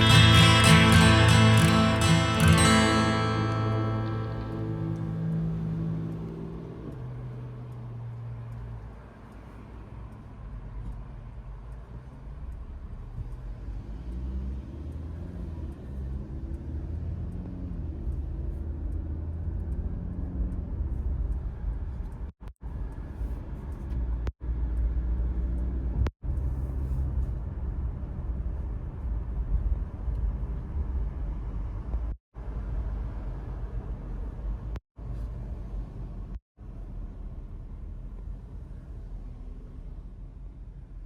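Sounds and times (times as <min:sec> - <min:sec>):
road and tyre rumble: 0:00.0 - 0:41.0.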